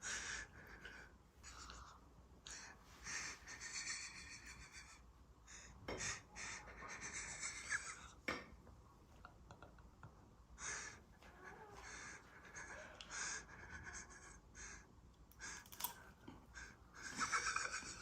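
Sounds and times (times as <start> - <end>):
person breathing hissing breaths: 0.0 - 7.6, 10.6 - 15.9.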